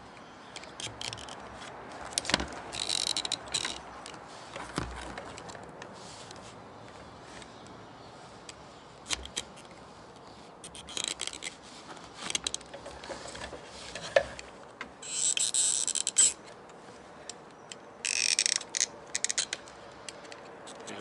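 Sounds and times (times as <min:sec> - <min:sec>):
plastic clicks and scrapes: 0:00.6 - 0:06.4, 0:08.5 - 0:16.8.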